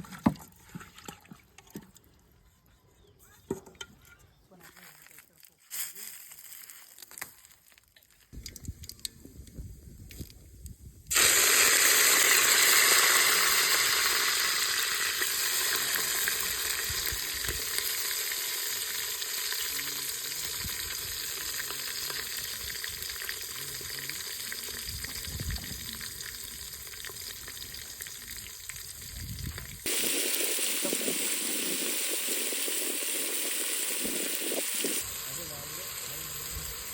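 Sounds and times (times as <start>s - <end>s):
food sizzling in hot oil: 11.1s - 36.9s.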